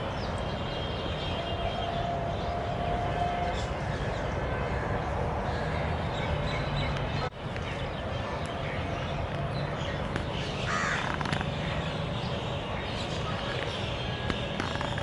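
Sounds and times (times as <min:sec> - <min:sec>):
crow-like cawing: 0:10.7 - 0:11.3.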